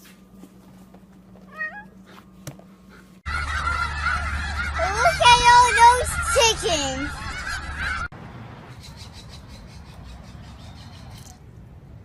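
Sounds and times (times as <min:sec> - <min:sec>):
meow-like animal call: 0:01.5 - 0:01.9
flock of fowl calling: 0:03.3 - 0:08.1.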